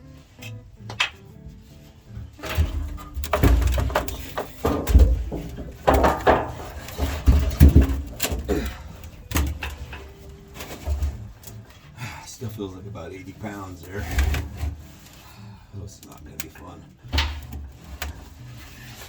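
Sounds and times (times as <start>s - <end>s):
fuel tank thumping and scraping: 0.3s - 19.0s.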